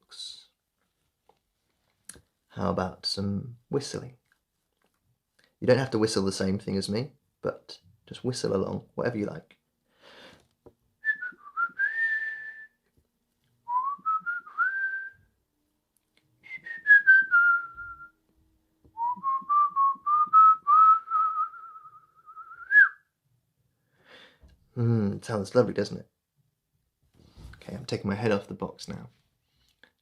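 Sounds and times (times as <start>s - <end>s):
man whistling a tune: 11.0s - 12.8s, 13.7s - 15.2s, 16.4s - 18.2s, 19.0s - 23.1s.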